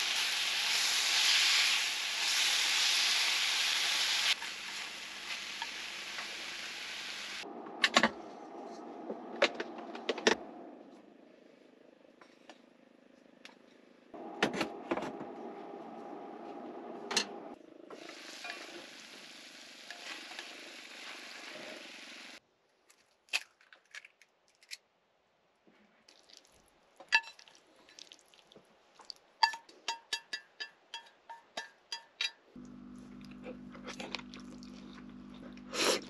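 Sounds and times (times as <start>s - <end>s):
meat sizzling in a pan: 0.0s - 7.4s, 18.1s - 22.4s
utensils clinking against pan: 29.4s - 32.5s.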